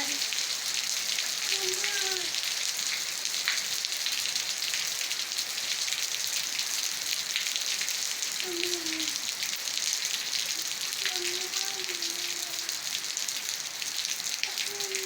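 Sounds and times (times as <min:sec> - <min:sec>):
rain falling on vegetation: 0:00.0 - 0:15.0.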